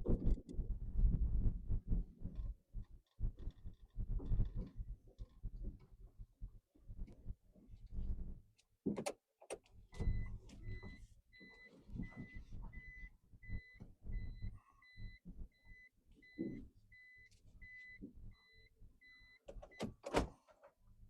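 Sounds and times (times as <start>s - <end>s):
reversing warning beep: 10.0s - 19.8s.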